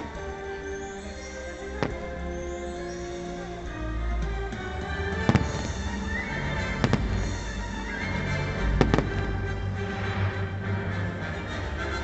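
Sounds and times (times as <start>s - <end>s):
fireworks bursting: 0.0s - 3.6s, 4.8s - 10.5s
music playing: 0.0s - 12.0s.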